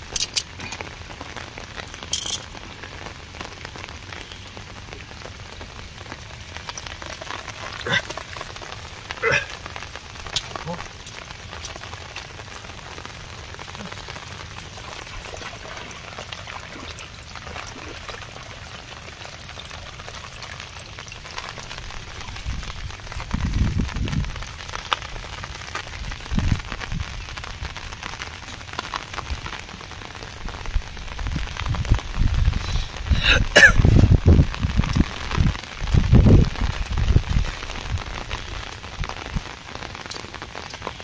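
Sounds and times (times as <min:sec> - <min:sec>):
crackling burst: 0:00.0 - 0:18.2
rain patter: 0:00.0 - 0:41.0
low thumps and rumbles: 0:33.7 - 0:38.1.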